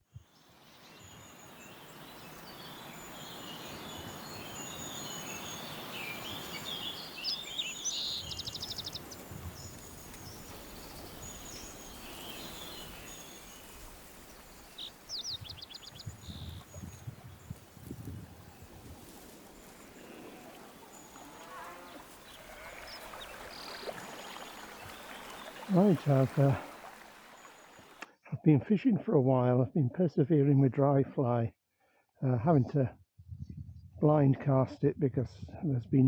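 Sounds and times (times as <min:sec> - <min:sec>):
songbirds singing: 0:00.0 - 0:28.0
bird trill: 0:01.0 - 0:16.9
river water rushing: 0:18.6 - 0:28.0.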